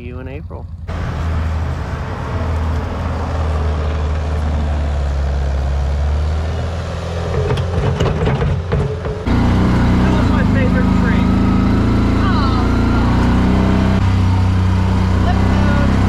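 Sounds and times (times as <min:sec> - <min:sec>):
skid steer engine running: 0:00.0 - 0:16.0
metallic clanking and rattling: 0:07.1 - 0:09.3.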